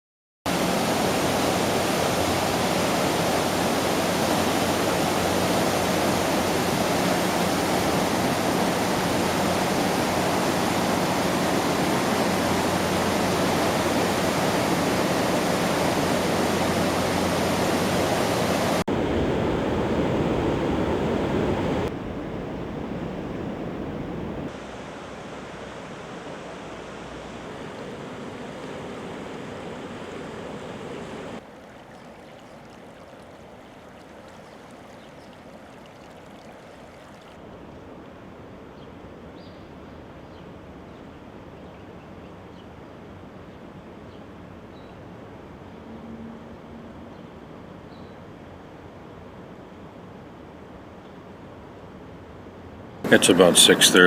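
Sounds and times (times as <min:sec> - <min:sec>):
floodwater rushing: 0:00.5 - 0:37.5, 0:53.0 - 0:54.0.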